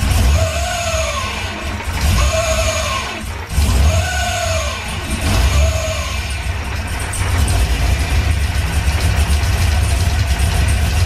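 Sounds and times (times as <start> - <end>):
car engine idling: 0.0 - 11.0
high-pitched throttle whistle: 0.2 - 6.4.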